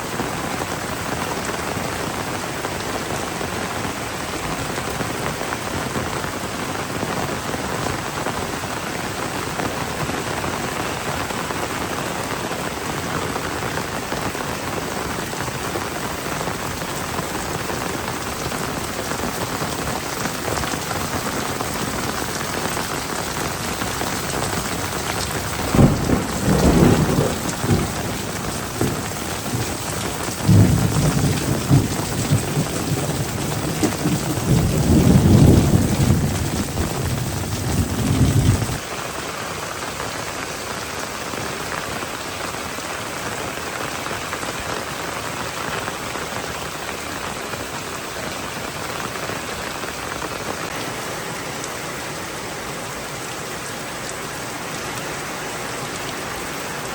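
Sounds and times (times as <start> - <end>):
heavy rain pouring: 0.0 - 56.9
thunder rumbling: 9.4 - 38.8.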